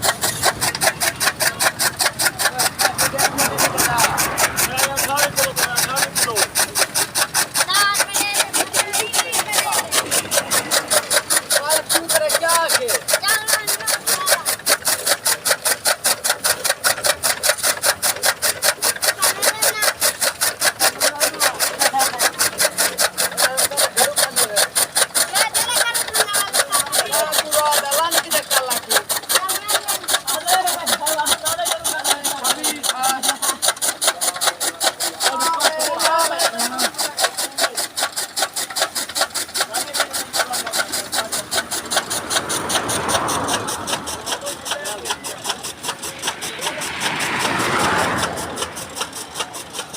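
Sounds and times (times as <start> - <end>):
chaff cutter chopping stalks: 0.0 - 49.9.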